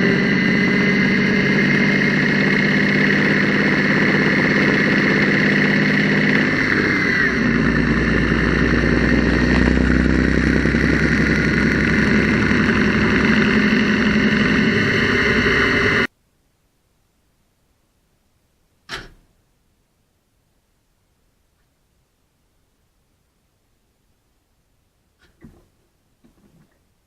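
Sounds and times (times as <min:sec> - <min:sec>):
engine running: 0:00.0 - 0:16.1.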